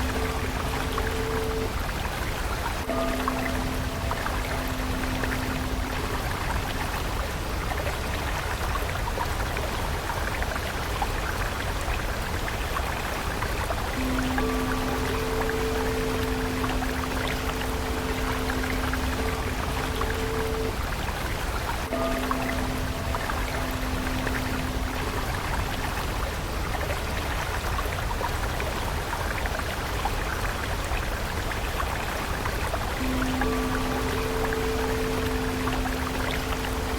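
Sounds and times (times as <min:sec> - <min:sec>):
soft held musical tone: 0:00.0 - 0:12.4, 0:13.0 - 0:29.6, 0:30.2 - 0:36.9
stream of water trickling: 0:00.0 - 0:36.9
soft held music note: 0:14.0 - 0:20.9, 0:33.0 - 0:36.9.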